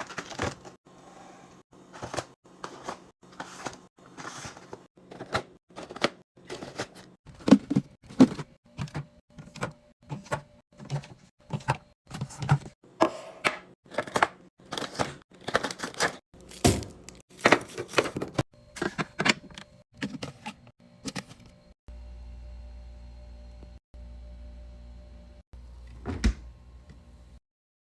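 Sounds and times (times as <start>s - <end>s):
packaged food items clattering: 0.0s - 0.8s, 1.8s - 12.7s, 13.9s - 20.4s.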